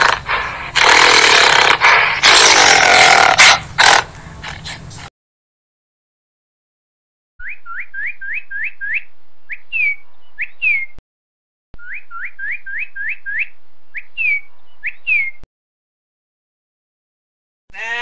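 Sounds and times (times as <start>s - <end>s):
bird song whistled notes: 7.4s - 11.0s, 11.8s - 15.4s.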